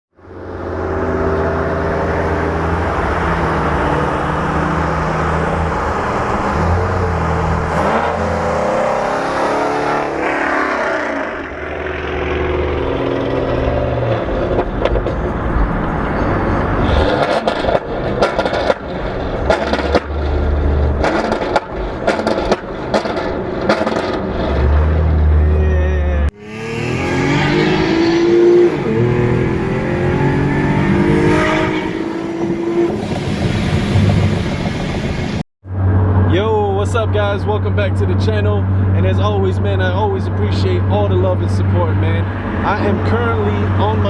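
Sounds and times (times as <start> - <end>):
car engines revving: 0.2 - 44.0
exhaust pops and crackles: 12.6 - 24.9.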